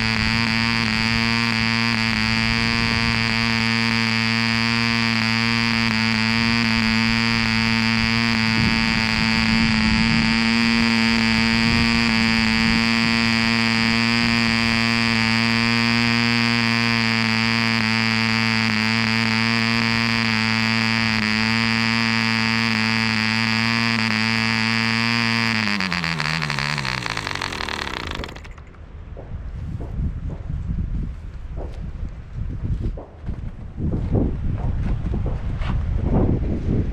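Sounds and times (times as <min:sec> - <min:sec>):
model engine buzzing: 0:00.0 - 0:28.8.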